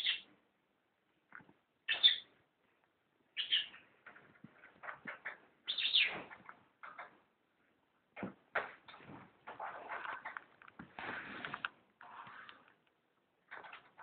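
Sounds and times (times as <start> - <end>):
cockatiel chirping and whistling: 3.4 - 3.7, 5.7 - 6.2.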